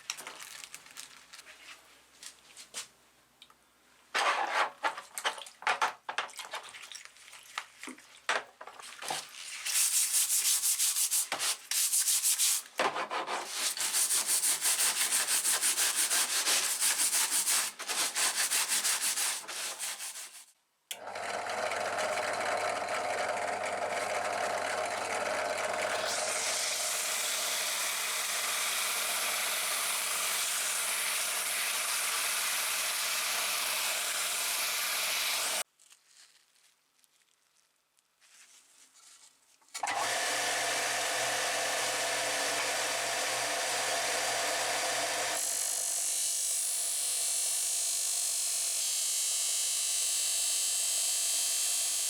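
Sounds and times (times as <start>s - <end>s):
sanding strokes: 9.6s - 20.5s
small electric tool running: 21.0s - 35.6s, 39.8s - 52.0s.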